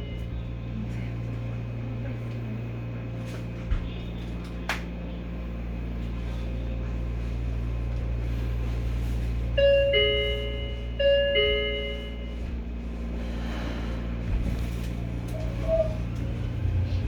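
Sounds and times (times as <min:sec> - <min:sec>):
electric train rumbling: 0:00.0 - 0:17.0
two-note chime: 0:09.6 - 0:12.3.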